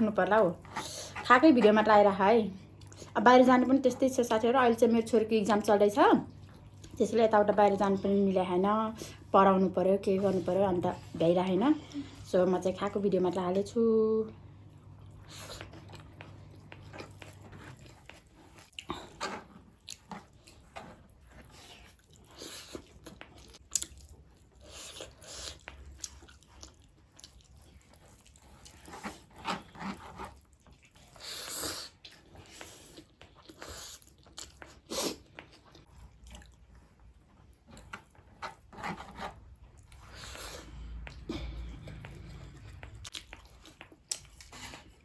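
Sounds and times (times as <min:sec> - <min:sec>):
person chewing food: 0:14.6 - 0:45.0.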